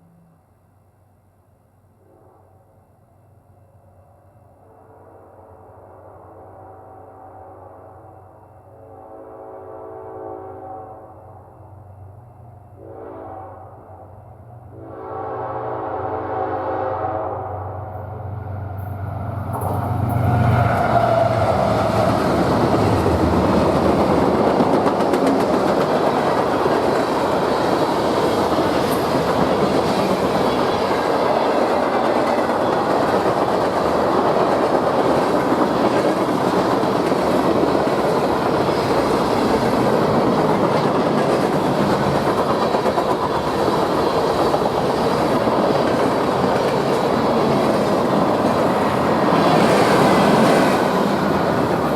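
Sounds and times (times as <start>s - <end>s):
diesel locomotive engine drone: 11.0s - 51.9s
train wheels clattering on rails: 18.8s - 51.9s.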